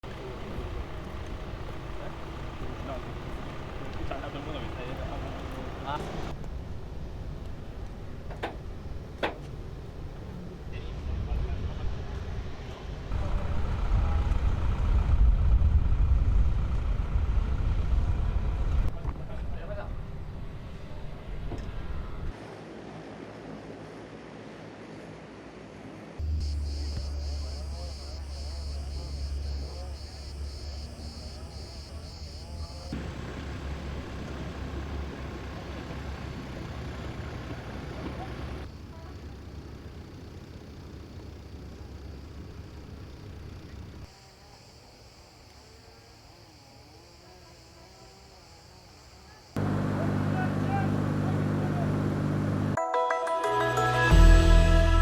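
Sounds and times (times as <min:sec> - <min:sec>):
voices: 0:00.0 - 0:06.4, 0:26.2 - 0:44.5, 0:46.8 - 0:52.8
aircraft engines rumbling: 0:00.0 - 0:22.3, 0:26.2 - 0:44.1, 0:49.4 - 0:52.8
cicada-like pulsing: 0:26.2 - 0:52.0
faint steady whine: 0:26.2 - 0:52.8.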